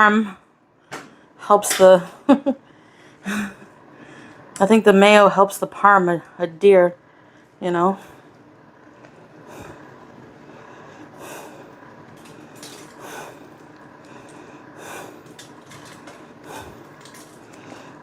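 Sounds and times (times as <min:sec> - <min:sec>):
soft breaths: 0:02.6 - 0:04.5, 0:07.0 - 0:18.0.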